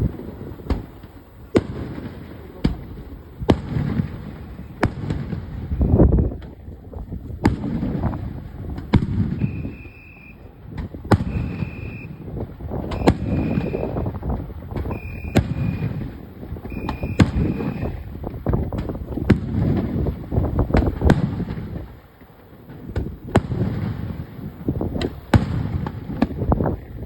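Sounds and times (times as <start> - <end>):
fireworks bursting: 0.0 - 27.0
short high beep: 9.4 - 10.4, 11.3 - 12.2, 13.0 - 14.0, 14.9 - 15.9, 16.7 - 18.0.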